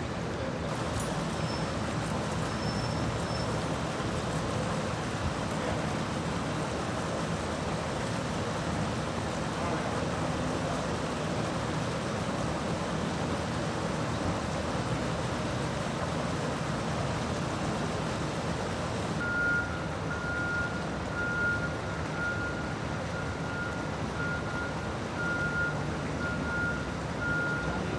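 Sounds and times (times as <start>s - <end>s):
flowing water: 0.0s - 27.9s
running vehicles: 0.0s - 27.9s
truck reversing beeper: 0.7s - 9.6s, 19.2s - 27.9s.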